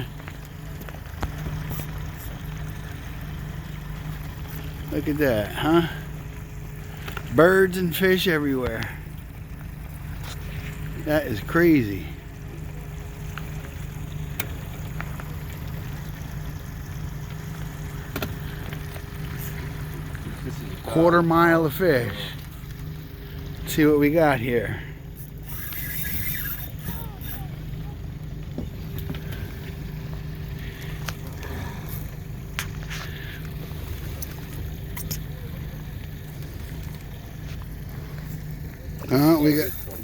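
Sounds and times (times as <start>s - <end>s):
boat engine idling: 0.0s - 40.0s
hissing splash: 13.9s - 40.0s
faint clicks: 25.2s - 38.8s.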